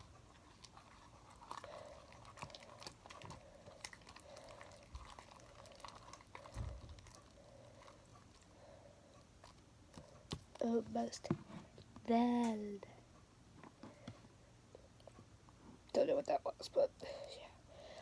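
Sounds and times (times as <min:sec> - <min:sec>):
sticky slime stirring strokes: 0:00.0 - 0:12.8.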